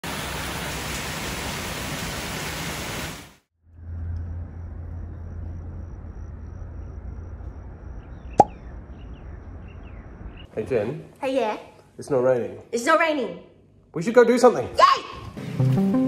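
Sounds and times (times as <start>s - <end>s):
torrential rain hiss: 0.0s - 3.4s
low hum: 3.6s - 10.4s.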